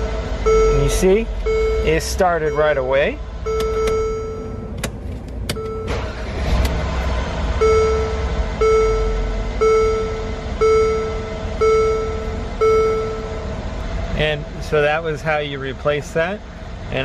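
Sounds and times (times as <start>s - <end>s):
warning chime: 0.0s - 4.7s
car engine idling: 0.0s - 17.0s.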